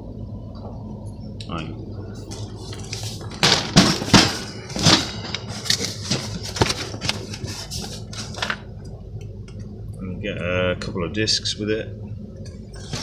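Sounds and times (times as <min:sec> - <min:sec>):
packaging rustles knocks and scrapes: 0:02.3 - 0:08.6.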